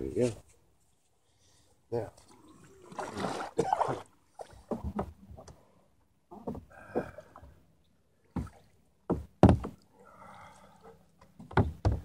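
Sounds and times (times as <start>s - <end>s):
knocks on kayak hull: 8.4s - 9.8s.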